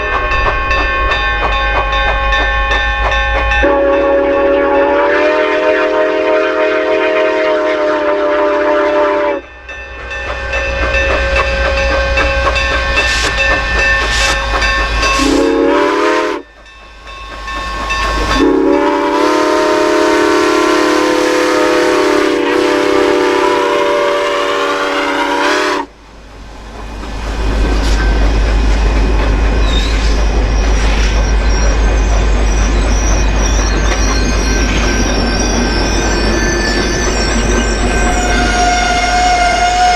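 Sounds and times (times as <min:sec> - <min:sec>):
steam locomotive whistle chord: 0:00.0 - 0:25.9, 0:32.8 - 0:39.9
locomotive low rumble: 0:09.4 - 0:15.8, 0:25.9 - 0:39.9.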